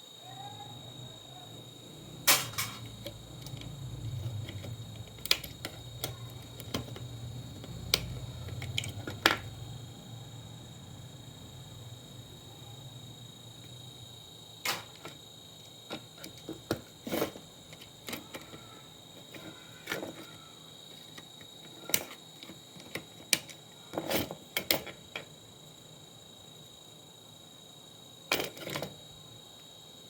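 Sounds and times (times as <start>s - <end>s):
clicks and knocks of tools: 2.3s - 9.5s, 14.6s - 15.2s, 15.9s - 25.3s, 28.3s - 29.0s.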